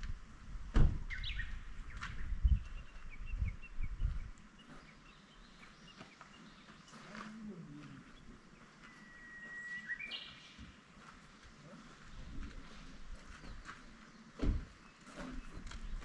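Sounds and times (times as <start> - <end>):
dull low thumps: 0.0 - 4.4
small birds chirping: 1.1 - 16.0.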